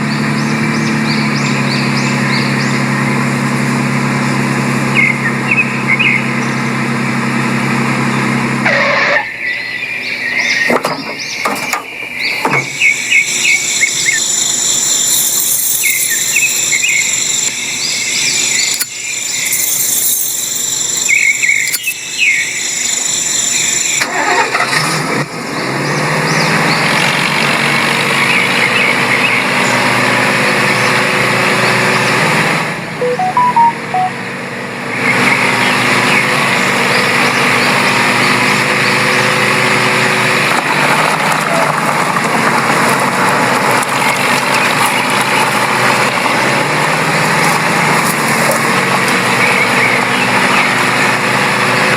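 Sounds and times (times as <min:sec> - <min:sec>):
engine running steadily: 0:00.0 - 0:51.9
short chirps: 0:12.8 - 0:22.8, 0:33.0 - 0:34.2
high thin tones: 0:33.0 - 0:34.2.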